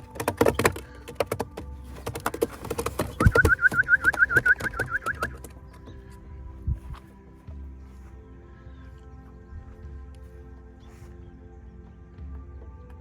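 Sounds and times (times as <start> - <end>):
pigeon wings flapping: 0.0 - 5.5
rapid high chirping trill: 3.2 - 5.4.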